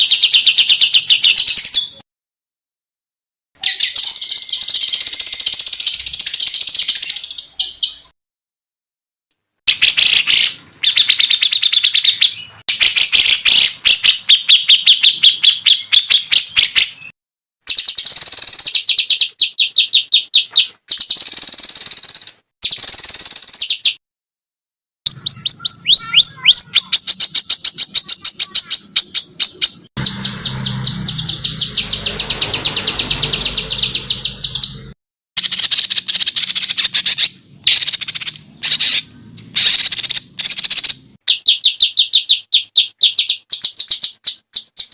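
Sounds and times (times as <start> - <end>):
songbird chattering trills: 25.1 - 44.9.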